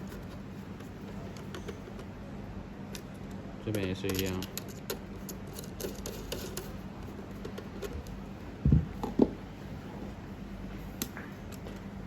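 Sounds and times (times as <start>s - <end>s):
dull knocks: 8.6s - 9.4s.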